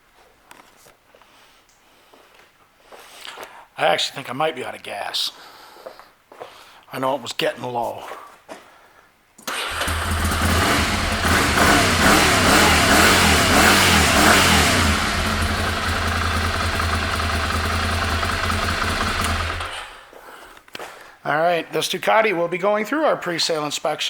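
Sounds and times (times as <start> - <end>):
motorcycle engine revving and idling: 9.6 - 20.1.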